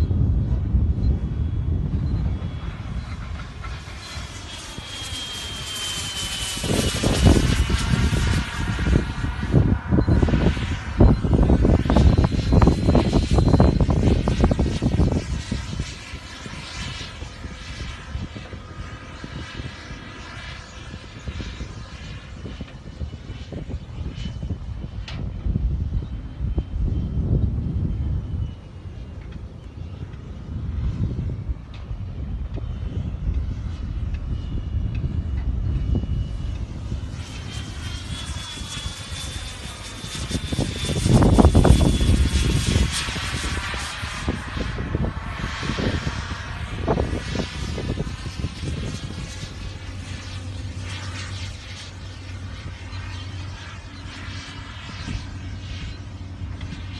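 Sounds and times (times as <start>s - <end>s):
electric ducted fans whining: 0.0s - 56.9s
wind buffeting microphone: 0.0s - 56.9s.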